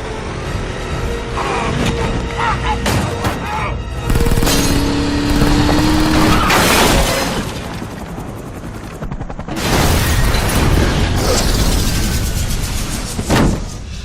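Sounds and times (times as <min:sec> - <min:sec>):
film music score: 0:00.0 - 0:14.0
crashing shattering noise: 0:06.1 - 0:07.7.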